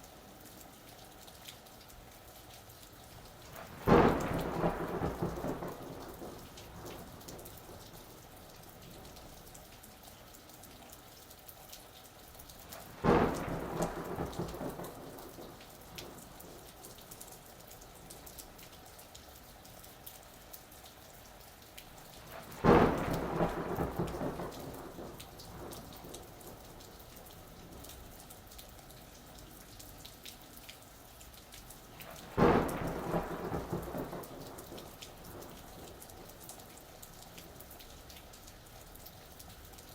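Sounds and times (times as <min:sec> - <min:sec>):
steady rain pattering: 0:00.0 - 0:39.9
thunder cracks rumbling: 0:03.6 - 0:08.2, 0:12.8 - 0:16.6, 0:22.3 - 0:27.0, 0:32.1 - 0:36.7.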